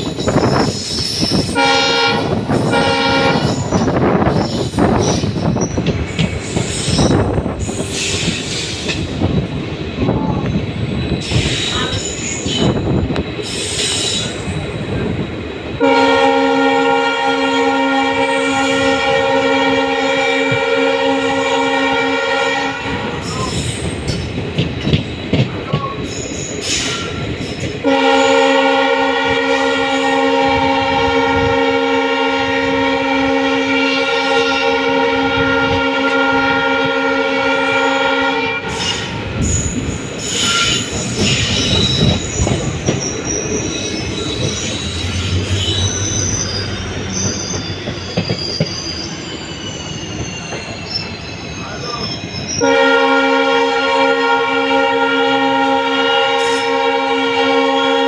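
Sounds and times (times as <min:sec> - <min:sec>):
train wheels squealing: 0:00.0 - 0:01.6, 0:02.5 - 0:09.1, 0:10.2 - 0:14.8, 0:23.0 - 0:28.5, 0:38.7 - 0:52.8, 0:56.3 - 0:56.7
train running on rails: 0:00.0 - 0:58.0
train horn blast: 0:01.5 - 0:04.3, 0:15.8 - 0:23.3, 0:27.8 - 0:39.2, 0:52.6 - 0:58.0.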